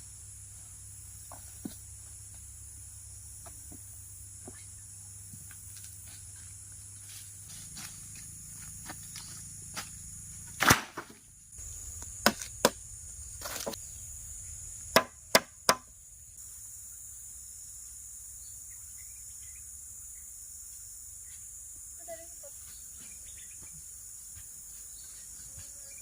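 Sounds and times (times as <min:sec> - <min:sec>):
high-pitched insect drone: 0:00.0 - 0:10.6, 0:11.5 - 0:26.0
wood being chopped: 0:10.5 - 0:11.2, 0:12.2 - 0:12.8, 0:13.4 - 0:13.8, 0:14.9 - 0:15.9.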